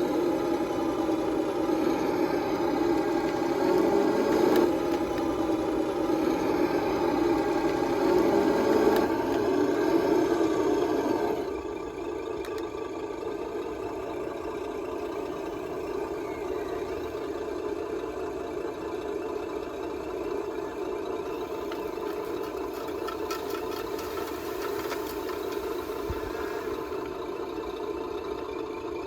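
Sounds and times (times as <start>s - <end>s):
electronic diesel engine sound: 0.0s - 29.0s
light clicks and rattles: 21.6s - 26.5s.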